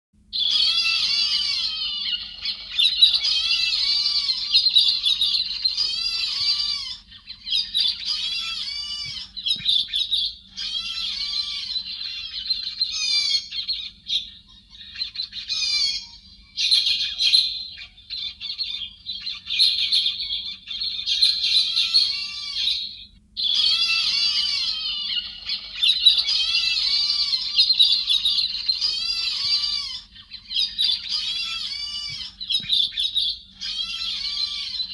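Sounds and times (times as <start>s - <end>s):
faint steady hum: 0.2s - 34.9s
bird scratchy chattering calls: 0.4s - 34.9s.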